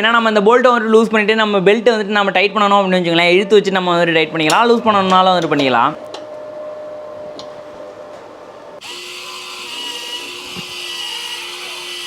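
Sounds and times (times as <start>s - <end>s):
power tool motor whining: 8.8s - 12.0s.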